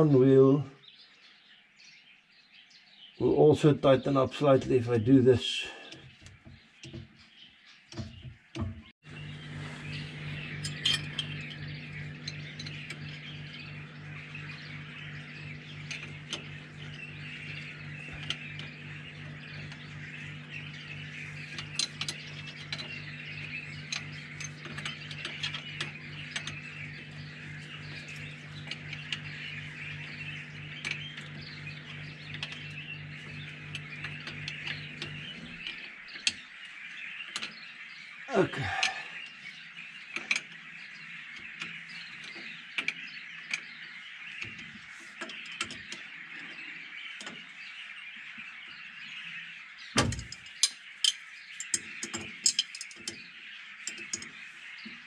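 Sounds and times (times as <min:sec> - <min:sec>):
birds chirping: 0:00.0 - 0:55.0
steady low hum: 0:09.0 - 0:36.2.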